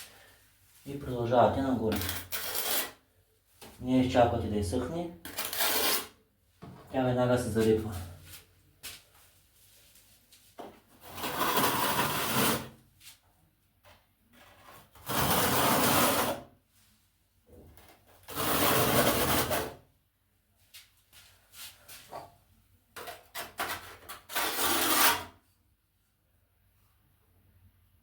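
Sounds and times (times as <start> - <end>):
trowel scraping tile adhesive: 1.9 - 3.0, 5.3 - 6.2, 11.0 - 12.8, 14.4 - 16.4, 18.2 - 19.8, 23.0 - 25.4.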